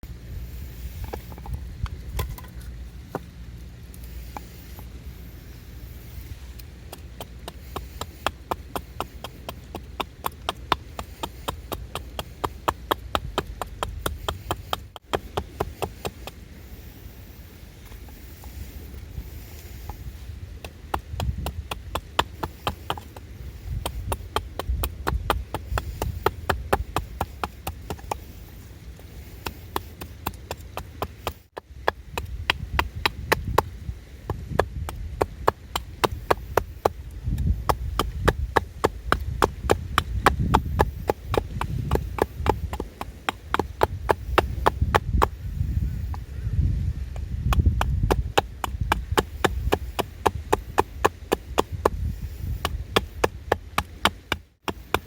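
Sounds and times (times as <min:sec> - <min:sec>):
rapid sharp tool knocks: 0:06.9 - 0:16.4.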